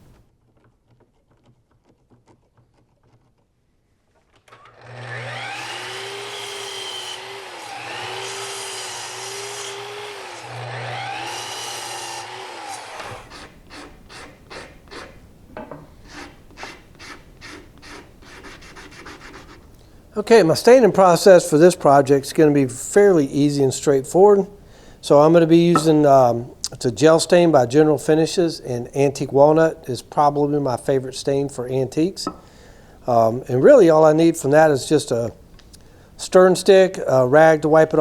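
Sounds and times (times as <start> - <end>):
power tool cutting wood: 4.5 - 14.3
hand sanding on wood: 16.1 - 19.6.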